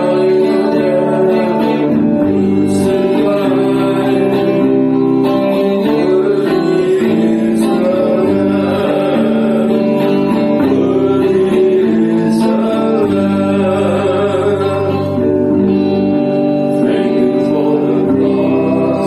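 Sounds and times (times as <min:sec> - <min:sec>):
person singing worship song: 0:00.0 - 0:19.0
strummed acoustic guitar: 0:00.0 - 0:19.0.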